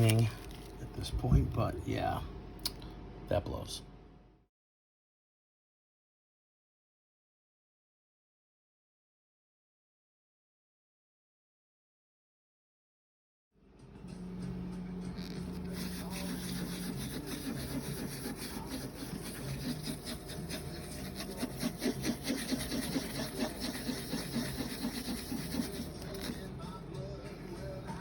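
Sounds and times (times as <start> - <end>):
spatula scraping resin off screen: 15.2 - 26.5.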